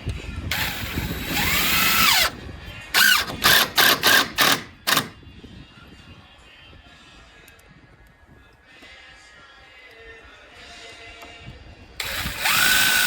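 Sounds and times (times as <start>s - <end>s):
cordless drill driving screws: 0.5s - 2.4s, 3.0s - 5.2s, 12.0s - 13.0s.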